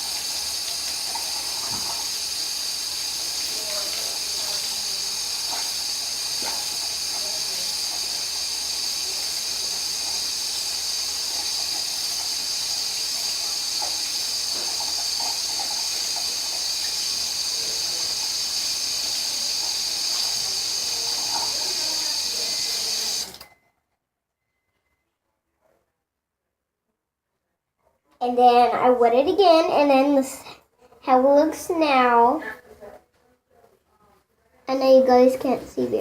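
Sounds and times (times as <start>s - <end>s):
sink tap running: 0.0s - 23.5s.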